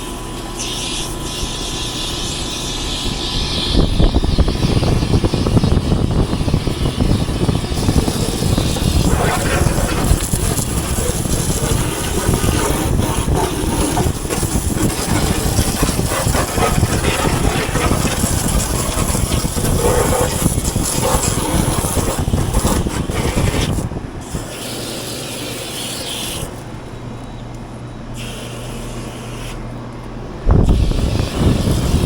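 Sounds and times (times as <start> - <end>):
hose spraying water hiss: 0.0 - 26.7, 28.2 - 29.6
steady low hum: 0.0 - 32.0.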